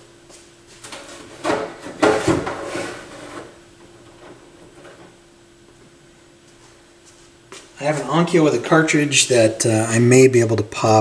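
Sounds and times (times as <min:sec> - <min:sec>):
faint steady hum: 0:00.0 - 0:11.0
objects knocking and scraping: 0:00.8 - 0:05.2.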